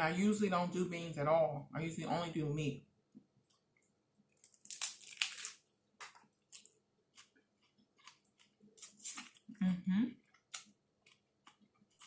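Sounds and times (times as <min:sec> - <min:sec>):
person chewing wetly: 0:03.4 - 0:09.6, 0:10.2 - 0:12.0.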